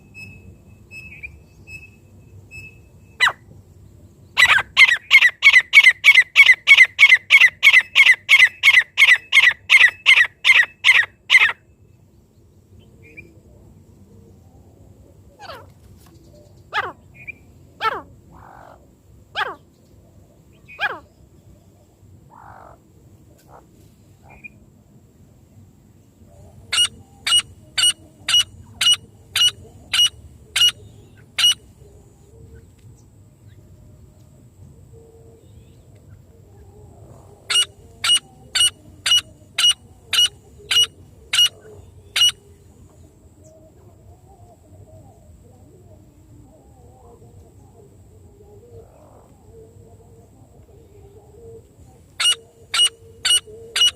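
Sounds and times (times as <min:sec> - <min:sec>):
faint bird chirps: 0:00.0 - 0:03.5, 0:35.0 - 0:45.3, 0:50.8 - 0:53.9
francolin calling: 0:04.4 - 0:11.6, 0:26.3 - 0:32.4, 0:35.4 - 0:43.6, 0:50.9 - 0:53.9.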